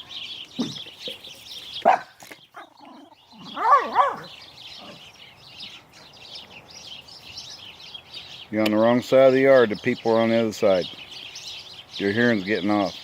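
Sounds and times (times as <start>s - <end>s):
small birds chirping: 0.0s - 13.0s
dog barking: 1.8s - 2.2s, 3.5s - 4.3s.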